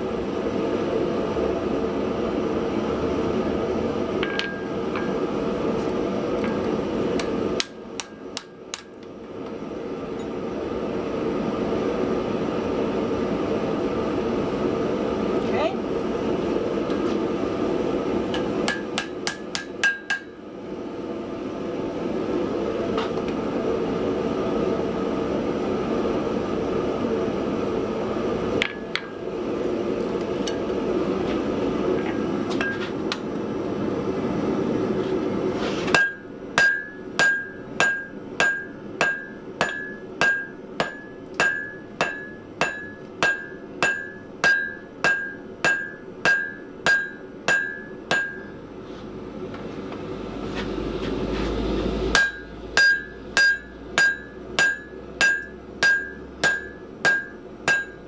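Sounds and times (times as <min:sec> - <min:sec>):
hammer blows on anvil ringing: 0:18.4 - 0:20.4, 0:36.0 - 0:48.6, 0:52.1 - 0:58.0.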